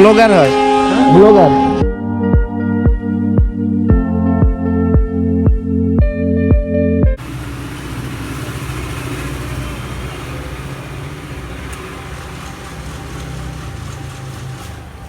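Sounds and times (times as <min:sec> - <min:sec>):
electronic music with beat: 0:00.0 - 0:07.2
vehicle engine humming: 0:07.2 - 0:15.0.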